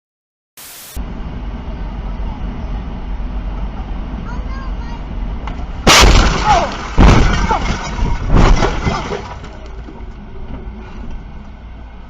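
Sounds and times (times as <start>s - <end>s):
vehicle crash impacts: 5.4s - 10.1s.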